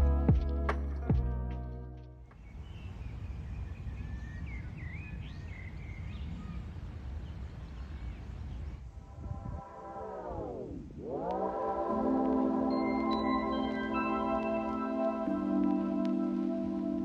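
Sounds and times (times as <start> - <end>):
small birds chirping: 2.3 - 8.8
steady low rumble: 8.8 - 13.4.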